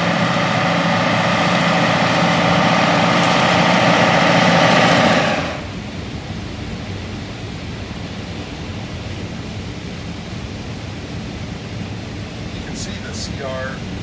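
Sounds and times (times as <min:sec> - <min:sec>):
combine harvester rushing noise: 0:00.0 - 0:06.1, 0:12.0 - 0:14.0
low constant hum: 0:00.0 - 0:14.0.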